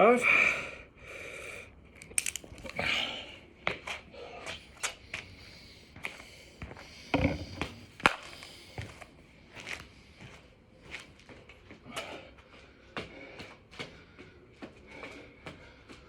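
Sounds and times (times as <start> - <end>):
knocks and clicks on a floor: 7.1 - 8.2.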